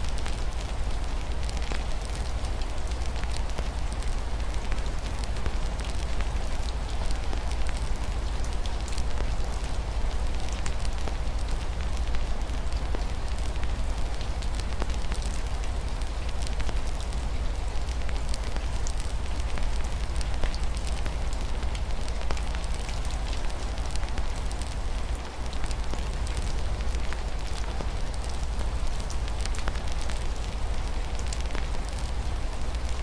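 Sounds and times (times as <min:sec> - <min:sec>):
rain hiss: 0:00.0 - 0:33.0
wood fire crackling: 0:10.2 - 0:33.0.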